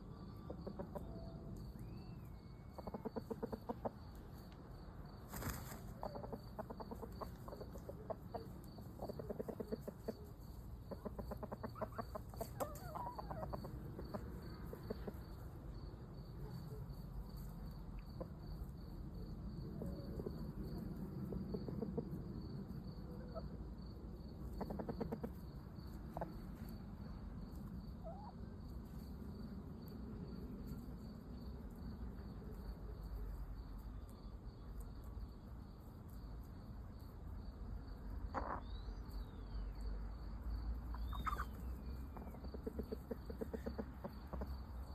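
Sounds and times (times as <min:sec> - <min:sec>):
chickens clucking: 0:00.0 - 0:29.1, 0:38.0 - 0:39.3, 0:40.8 - 0:44.9
cricket chirping: 0:00.0 - 0:44.9.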